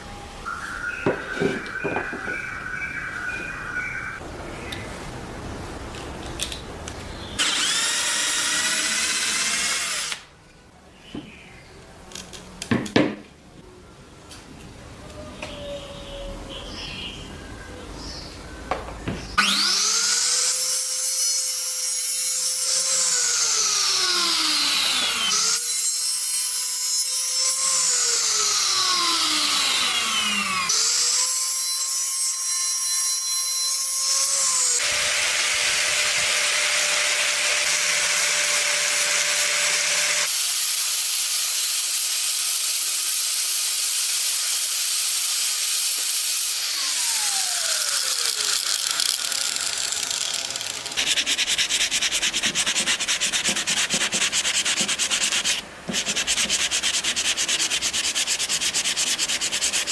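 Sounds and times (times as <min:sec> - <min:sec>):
power tool motor: 0:07.4 - 0:10.3, 0:19.4 - 0:31.6, 0:34.0 - 0:51.2.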